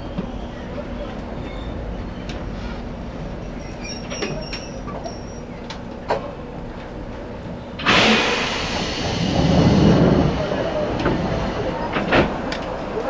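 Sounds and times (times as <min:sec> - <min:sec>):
electric train humming: 0:00.0 - 0:13.0
loud air hiss: 0:07.8 - 0:11.9.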